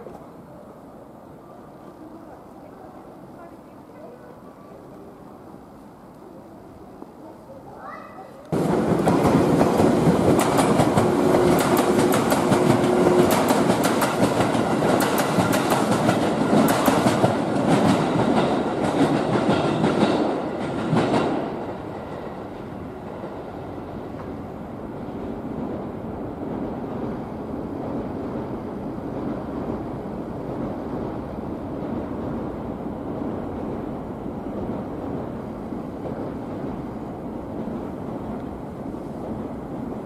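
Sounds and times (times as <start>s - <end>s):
steady train rumble: 8.4s - 40.0s
train wheels clattering over rail joints: 8.6s - 22.7s.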